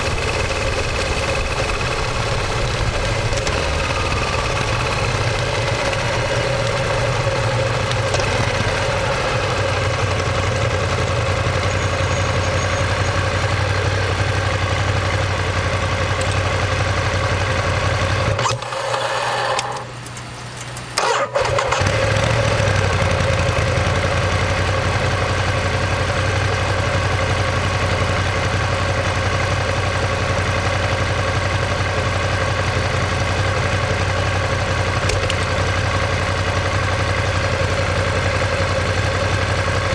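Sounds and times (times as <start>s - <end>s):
starter motor turning over: 0.0s - 13.2s, 15.8s - 23.8s, 34.9s - 36.4s
motorcycle engine idling: 0.0s - 18.5s, 19.7s - 39.9s.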